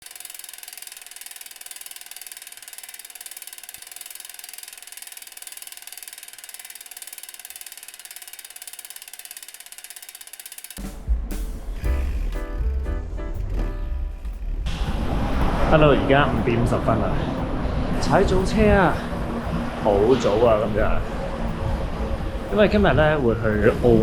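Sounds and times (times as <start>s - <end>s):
bicycle hub freewheel clicking: 0.0s - 11.0s.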